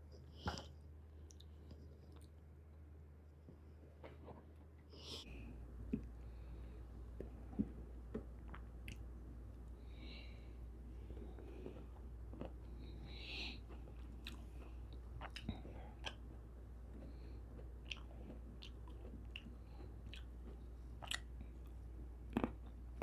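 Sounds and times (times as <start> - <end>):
faint low hum: 0.0 - 23.0
person chewing fruit: 7.0 - 9.8, 10.9 - 23.0.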